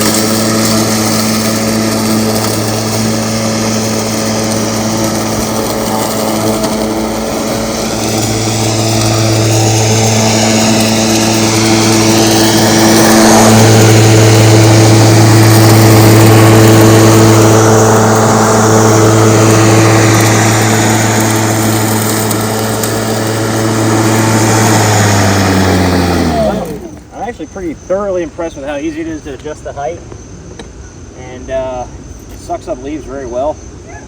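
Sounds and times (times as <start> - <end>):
spinning blade whir: 0.0 - 27.1
lawn mower motor hum: 0.0 - 30.1.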